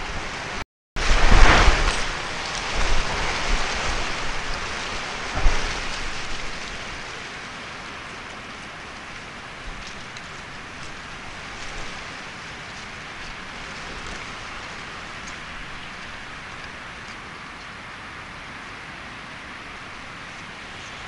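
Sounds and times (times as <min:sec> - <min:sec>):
heavy low rumble: 0:00.0 - 0:17.1
rain hissing: 0:00.0 - 0:21.0.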